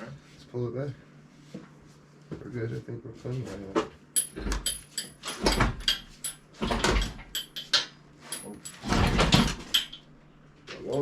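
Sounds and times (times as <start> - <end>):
metal clanks and rattles: 4.2 - 10.1.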